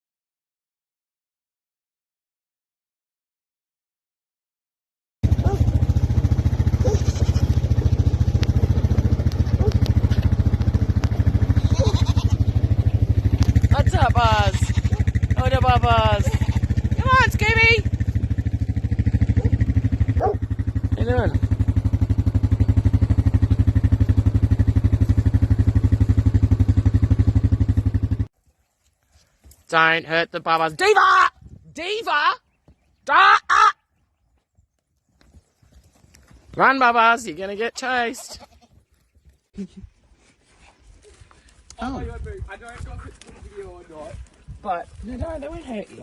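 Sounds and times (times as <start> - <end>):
quad bike engine running: 5.2 - 28.3.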